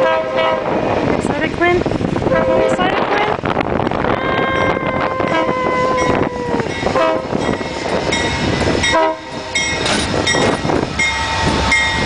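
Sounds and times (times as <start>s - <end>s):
train horn chord: 0.0s - 0.8s, 4.2s - 7.4s, 8.9s - 9.5s.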